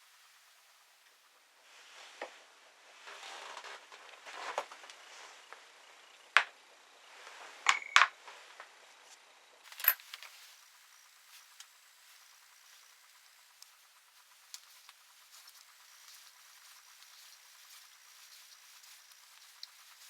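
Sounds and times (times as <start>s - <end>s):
soft scraping and rustling: 0.0s - 5.7s, 8.2s - 20.0s
sharp metallic clicks and clinks: 9.7s - 10.4s.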